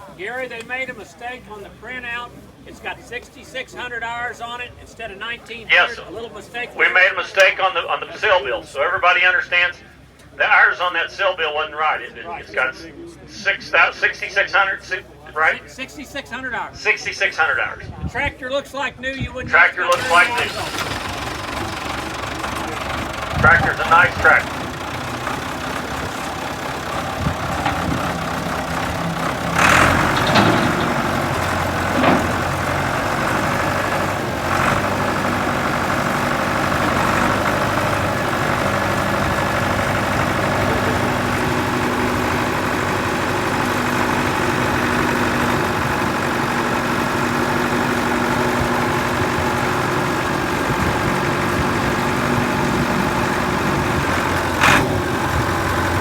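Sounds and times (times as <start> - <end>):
tractor engine idling: 0.0 - 17.8, 19.5 - 56.0
short knocks: 27.1 - 34.8.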